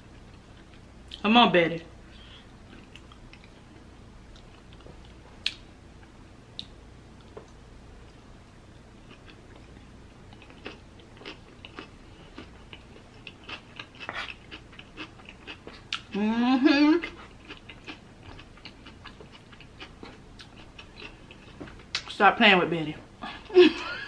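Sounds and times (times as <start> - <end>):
chewing mouth sounds: 9.1 - 16.2, 17.0 - 22.1.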